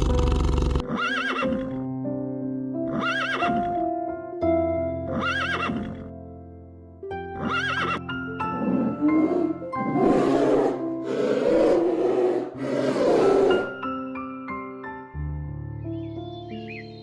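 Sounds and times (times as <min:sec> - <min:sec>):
horse whinnying: 0:00.0 - 0:01.8, 0:02.9 - 0:03.8, 0:05.1 - 0:06.1, 0:07.4 - 0:13.8
background music with sustained notes: 0:00.0 - 0:17.0.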